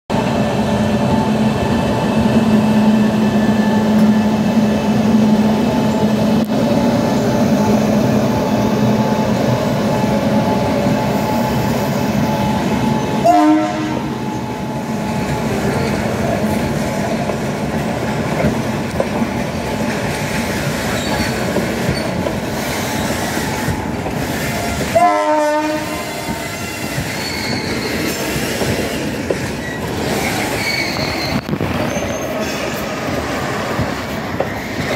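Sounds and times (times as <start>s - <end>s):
electric locomotive hum: 0.1s - 34.9s
train horn blasts: 13.2s - 14.1s, 24.6s - 27.0s.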